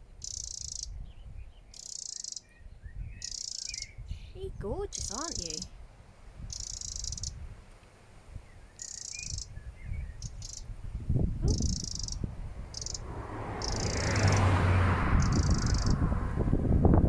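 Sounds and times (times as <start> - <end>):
songbird chirps and buzzy trills: 0.0 - 5.7, 6.4 - 7.4, 8.3 - 13.0.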